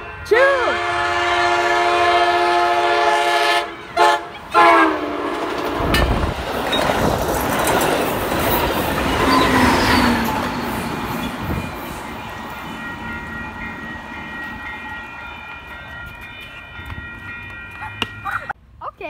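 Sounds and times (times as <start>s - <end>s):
train horn: 0.0s - 6.1s
train rumbling on rails: 0.8s - 18.6s.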